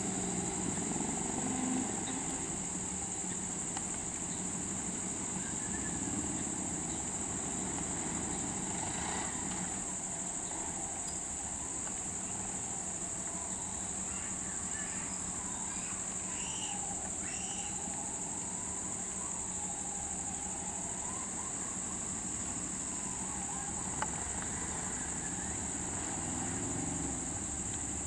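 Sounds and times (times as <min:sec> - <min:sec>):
high-pitched insect chorus: 0:00.0 - 0:28.0
faint bird-like chirps: 0:13.3 - 0:18.0.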